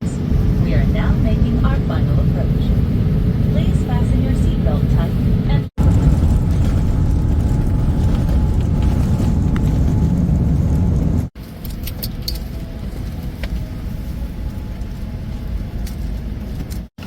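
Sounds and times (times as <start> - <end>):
jet engines and airflow: 0.0 - 17.0
cabin hum: 0.2 - 11.4.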